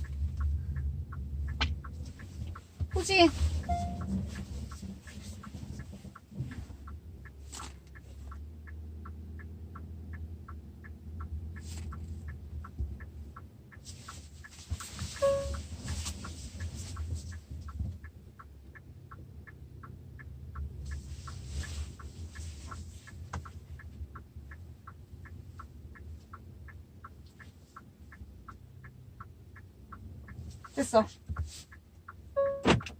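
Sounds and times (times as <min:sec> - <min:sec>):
parking sensor warning beeps: 0:00.0 - 0:05.5, 0:14.0 - 0:17.4, 0:30.3 - 0:32.9
low engine hum: 0:00.0 - 0:32.9.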